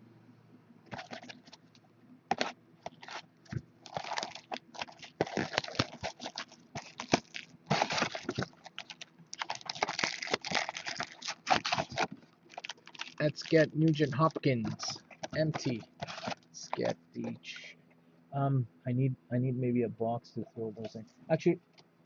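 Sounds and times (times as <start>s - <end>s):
cardboard rustling: 0.9s - 17.6s
plastic shrink-wrap crinkling and tearing: 3.8s - 16.9s.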